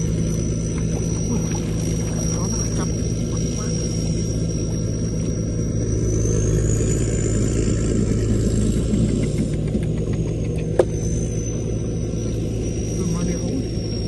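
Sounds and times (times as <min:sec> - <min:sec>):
engine humming: 0:00.0 - 0:14.0
thin high whine: 0:00.0 - 0:14.0.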